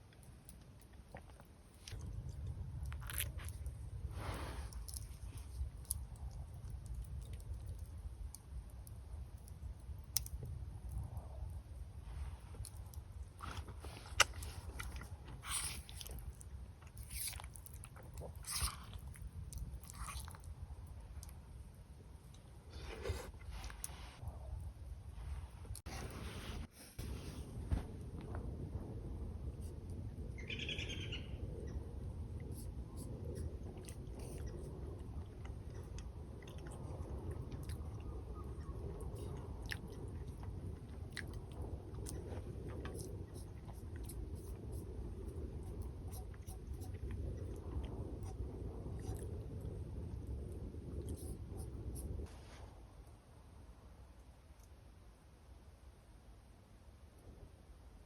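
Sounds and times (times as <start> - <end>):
person chewing crunchy food: 0.8 - 3.7, 12.6 - 20.6.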